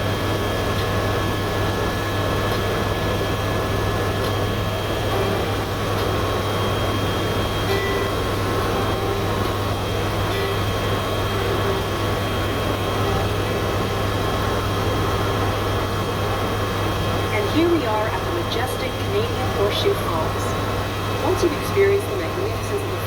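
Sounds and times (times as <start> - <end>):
helicopter drone from inside cabin: 0.0 - 23.0.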